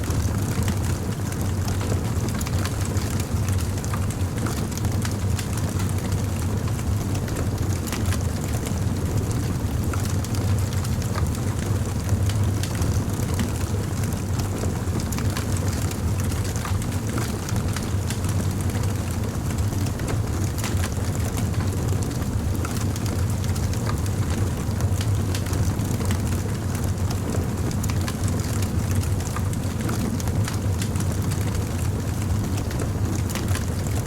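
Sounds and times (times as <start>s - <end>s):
low rumble of fire: 0.0s - 34.0s
fire crackling and popping: 15.1s - 34.0s.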